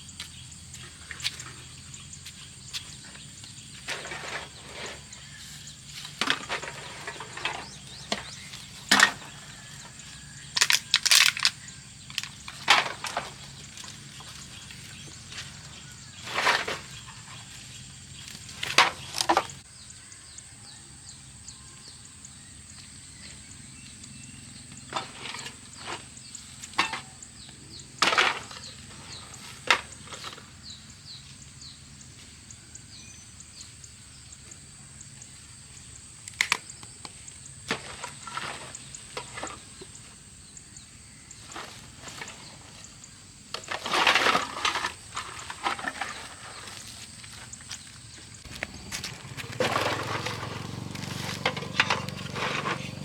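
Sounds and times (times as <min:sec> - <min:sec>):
debris cracking and crunching: 0:06.2 - 0:14.7, 0:48.4 - 0:53.0.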